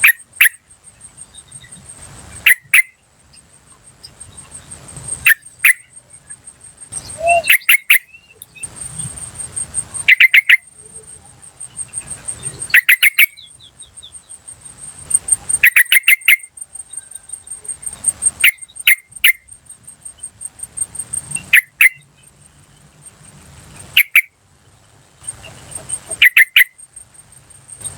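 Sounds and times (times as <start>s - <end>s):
high pulsing insect trill: 0.0s - 27.9s
bird sharp call notes: 6.9s - 8.8s.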